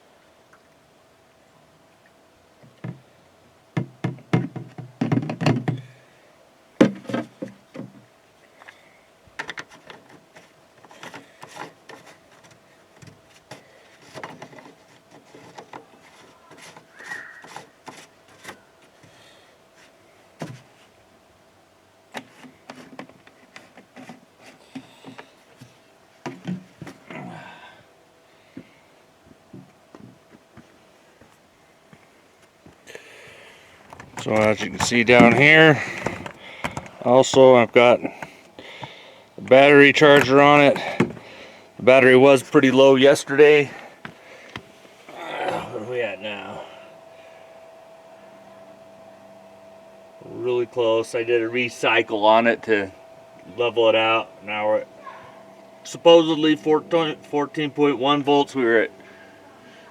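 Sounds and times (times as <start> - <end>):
knocks and clunks of parts handled: 3.8 - 5.9, 6.8 - 8.0, 9.4 - 18.6, 33.8 - 37.4, 40.1 - 41.3.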